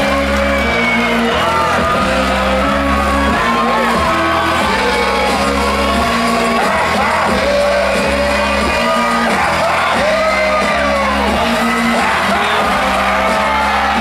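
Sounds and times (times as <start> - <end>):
heavy bass line: 0.0 - 14.0
shouted sung vocals: 0.0 - 14.0.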